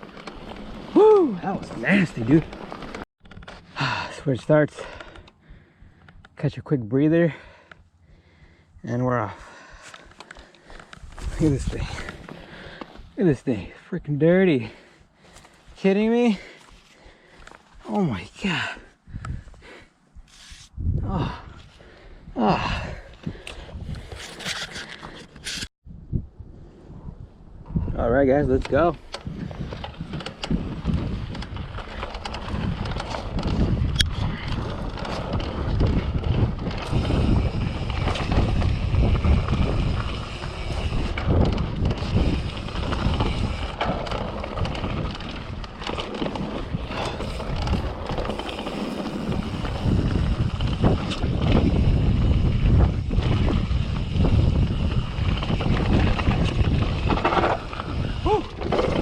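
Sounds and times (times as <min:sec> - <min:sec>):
bike rattling and knocking: 0:00.0 - 0:04.1, 0:28.6 - 0:59.0
wind buffeting microphone: 0:19.0 - 0:24.4, 0:25.8 - 0:59.0
tyre noise on muddy trail: 0:29.2 - 0:59.0.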